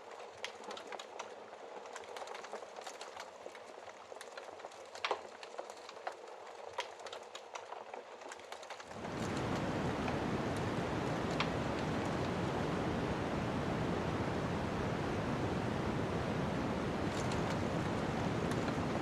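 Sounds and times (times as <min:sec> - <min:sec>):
wood fire crackling: 0:00.0 - 0:19.0
low rushing wind: 0:08.9 - 0:19.0.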